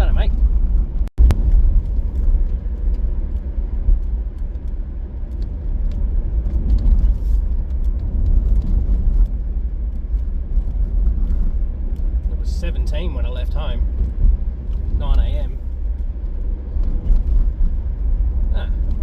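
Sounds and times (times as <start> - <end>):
vehicle driving rumble: 0.0 - 19.0.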